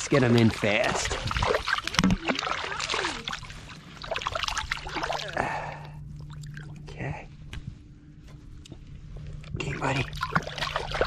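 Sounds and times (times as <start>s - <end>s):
trickling stream: 0.0s - 6.9s, 9.6s - 11.0s
low steady hum: 0.0s - 11.0s
fish splashing in water: 0.3s - 6.7s, 10.1s - 11.0s.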